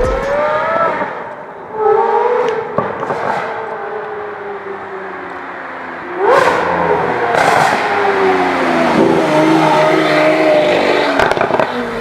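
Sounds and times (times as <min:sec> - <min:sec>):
sports car engine revving: 0:06.2 - 0:12.0.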